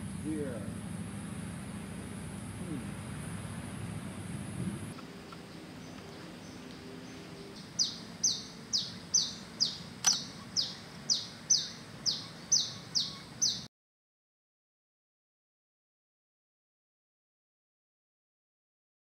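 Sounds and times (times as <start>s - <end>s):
bird calling with falling notes: 2.6s - 13.7s
sharp click: 10.0s - 10.3s.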